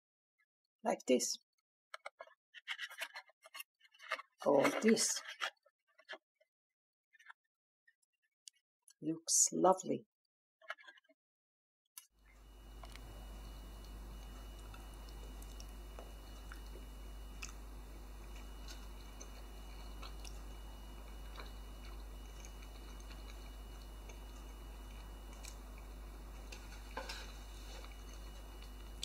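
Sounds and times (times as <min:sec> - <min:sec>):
person chewing food: 0:12.4 - 0:29.0.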